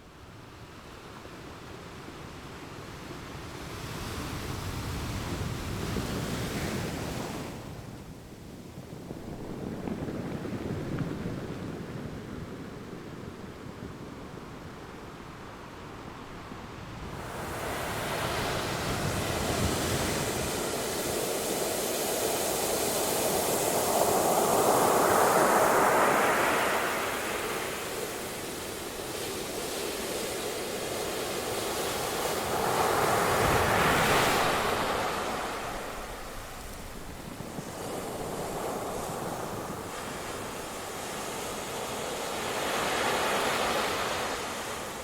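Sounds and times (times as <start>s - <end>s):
waves breaking on shore: 17.0s - 45.0s.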